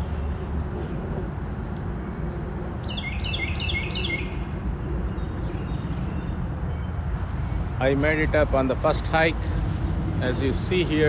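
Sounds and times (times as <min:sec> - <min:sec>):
songbird singing: 0:01.3 - 0:11.0
steady low rumble: 0:04.3 - 0:11.0.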